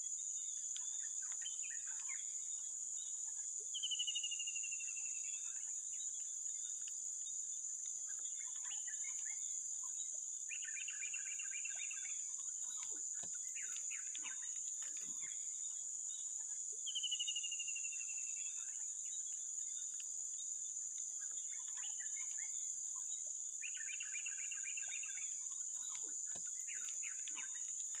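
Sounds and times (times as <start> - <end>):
bird calls: 8.1 - 20.5, 21.1 - 28.0.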